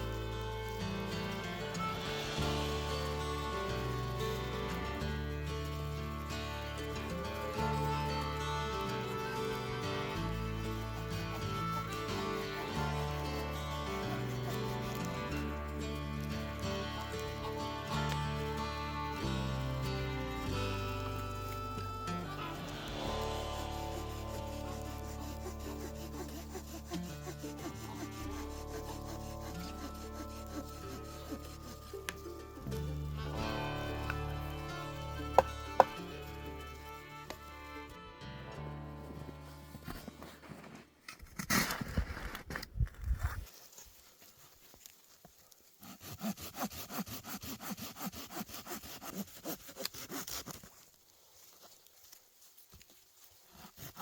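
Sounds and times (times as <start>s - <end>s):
saw cutting wood: 0.0s - 37.8s, 45.8s - 50.8s, 53.5s - 54.0s
background music: 0.0s - 40.3s.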